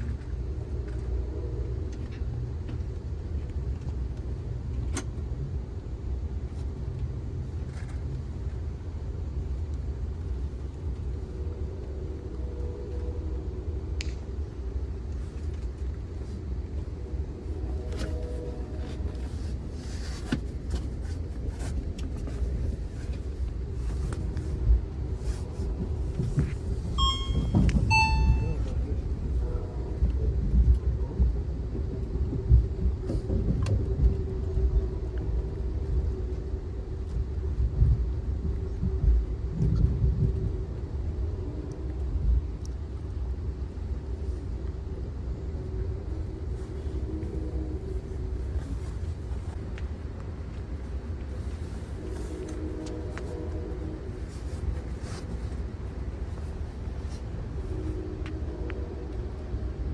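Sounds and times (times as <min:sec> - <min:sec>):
train rumbling: 0:00.0 - 0:59.9
train rolling over track: 0:15.2 - 0:34.9.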